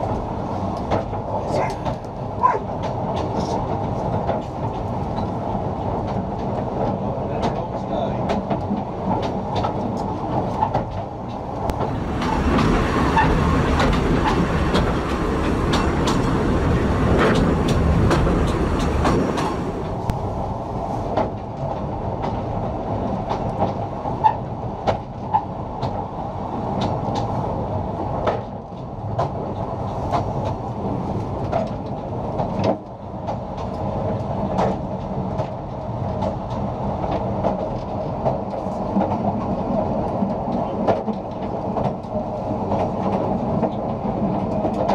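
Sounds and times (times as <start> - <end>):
wheels clicking over rail joints: 0.0 - 20.2, 21.0 - 44.9
train rumbling on track: 0.0 - 44.9
rushing noise: 11.4 - 21.1.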